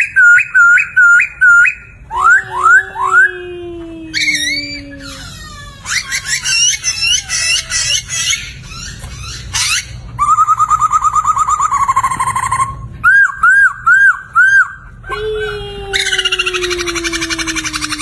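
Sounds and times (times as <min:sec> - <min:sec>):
laughingthrush singing: 0:01.9 - 0:09.8, 0:15.0 - 0:18.0.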